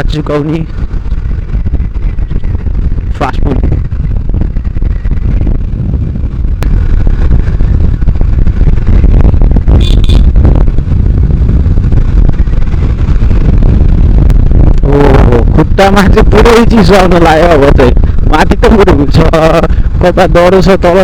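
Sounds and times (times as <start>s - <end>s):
motorcycle engine running: 0.0s - 16.0s
wind buffeting microphone: 0.0s - 21.0s.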